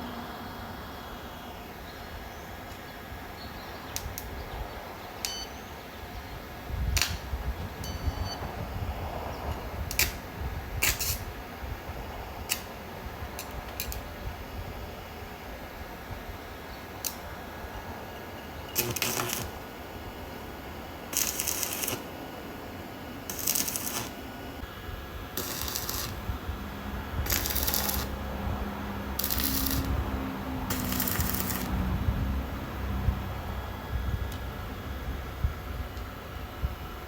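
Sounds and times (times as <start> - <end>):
welding arc crackling: 9.9 - 11.3, 17.0 - 17.2, 18.7 - 22.3, 23.1 - 32.8.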